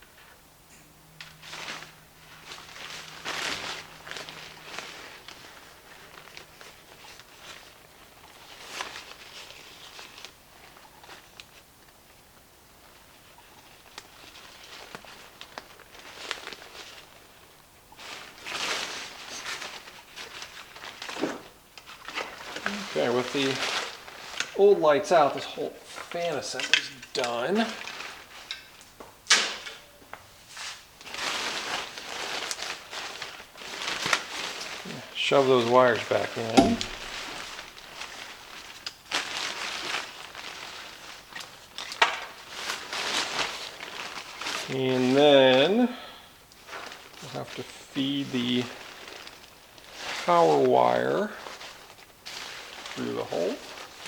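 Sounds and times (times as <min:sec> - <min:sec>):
fabric rustling and scraping: 0:01.4 - 0:08.0
sharp click: 0:36.6 - 0:37.2.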